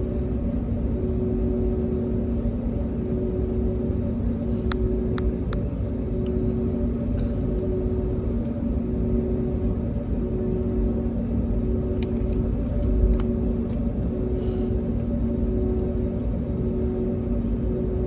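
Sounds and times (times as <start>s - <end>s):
airplane engines droning in cabin: 0.0s - 18.0s.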